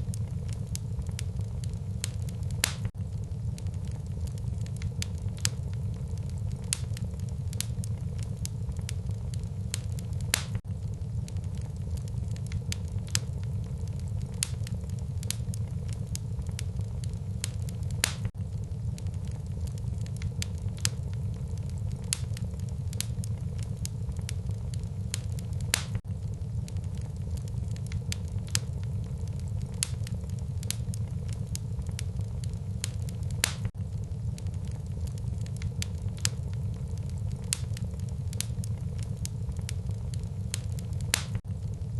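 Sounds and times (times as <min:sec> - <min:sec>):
fire low rumble: 0:00.0 - 0:41.9
wood fire crackling and popping: 0:00.0 - 0:41.9.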